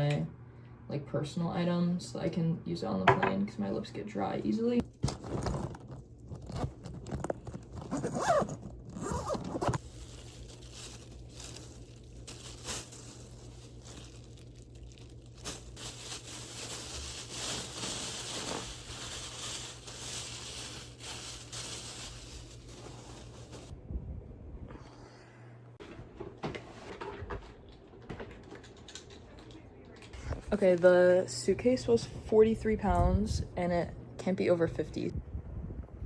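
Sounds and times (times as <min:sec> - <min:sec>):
rustling of packed items: 0:04.8 - 0:23.7
low hum: 0:05.4 - 0:25.8
bag zipper pulled: 0:06.4 - 0:09.8.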